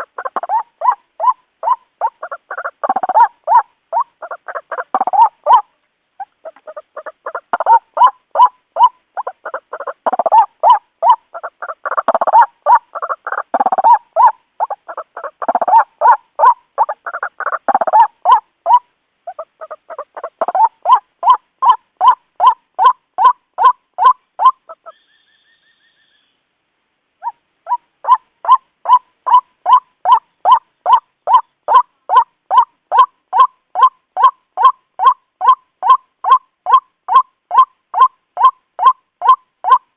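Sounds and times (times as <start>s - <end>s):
bird croaking calls: 0.0s - 26.5s, 27.2s - 39.9s
faint high whistle: 24.9s - 26.4s.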